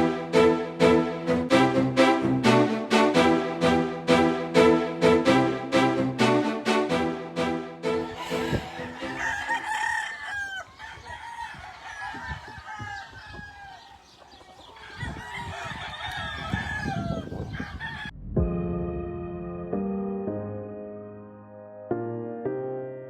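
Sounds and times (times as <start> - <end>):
background music: 0.0 - 10.4, 18.4 - 23.0
chickens clucking: 8.0 - 18.1
roosters crowing: 8.0 - 18.1.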